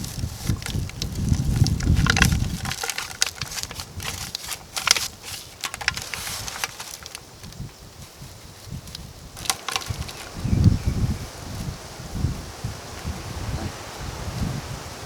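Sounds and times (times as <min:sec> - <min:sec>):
crunching and crackling: 0:00.0 - 0:10.8.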